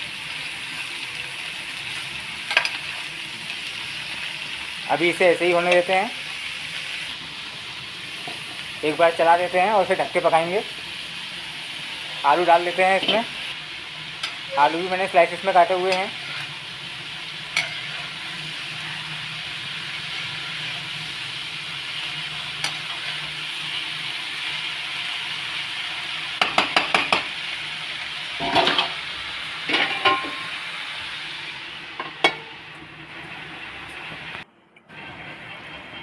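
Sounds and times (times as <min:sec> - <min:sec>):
vegetables sizzling in a pan: 0:00.0 - 0:36.0
metal spatula clinking against pan: 0:17.5 - 0:17.9
steel plate clinking on pan: 0:17.5 - 0:17.9, 0:28.4 - 0:29.0, 0:29.7 - 0:30.5, 0:32.0 - 0:32.5.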